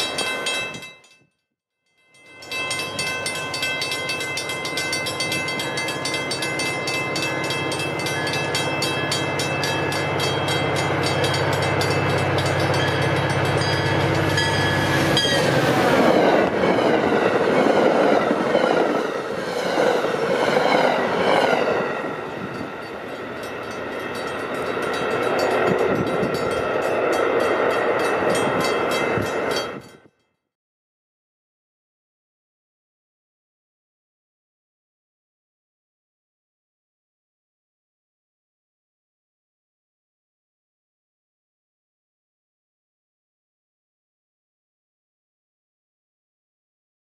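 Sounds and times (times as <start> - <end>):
crossing bells ringing: 0.0 - 1.2, 1.8 - 30.2
diesel locomotive running: 2.4 - 29.9
passenger coaches rumbling by: 2.6 - 29.9.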